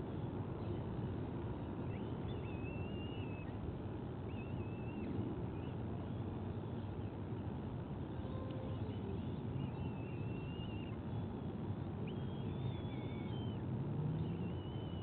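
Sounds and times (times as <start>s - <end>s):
low background rumble: 0.0s - 15.0s
whistled bird calls: 1.6s - 3.6s, 4.3s - 7.0s, 8.2s - 15.0s.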